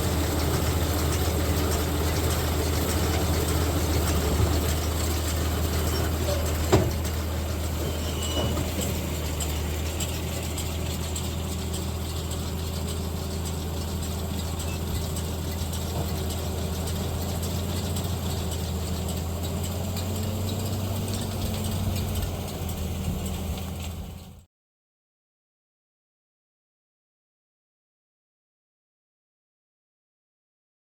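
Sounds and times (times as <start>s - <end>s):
machinery clatter: 0.0s - 24.4s
tractor engine running: 0.0s - 24.5s.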